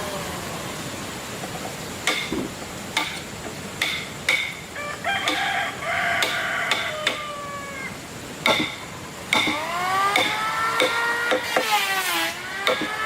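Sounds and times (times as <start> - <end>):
tool strikes on wood: 2.0 - 3.2, 3.8 - 4.6, 5.3 - 5.5, 6.2 - 7.3, 8.4 - 13.0
rooster crowing: 4.7 - 8.0.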